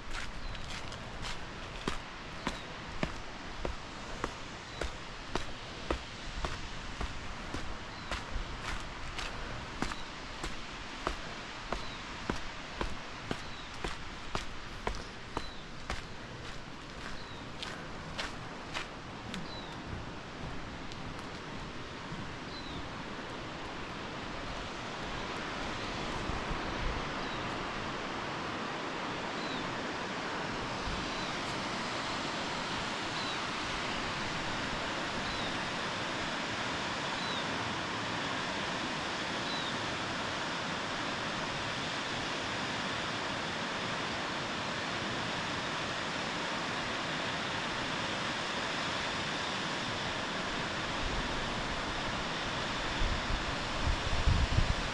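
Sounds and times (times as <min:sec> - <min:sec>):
rush of falling water: 0:00.0 - 0:29.3.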